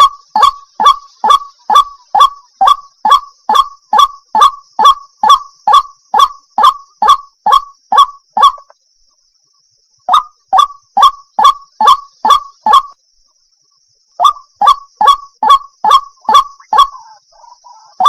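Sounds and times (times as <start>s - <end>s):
waterhen honking calls: 0.0s - 8.7s.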